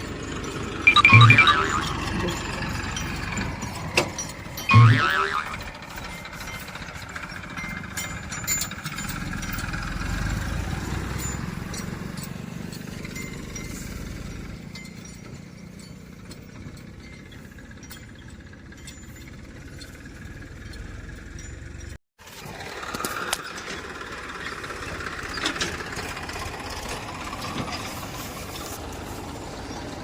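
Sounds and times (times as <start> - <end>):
vehicle engine rumbling: 0.0 - 30.0
light clinks: 1.9 - 4.7, 5.5 - 22.0.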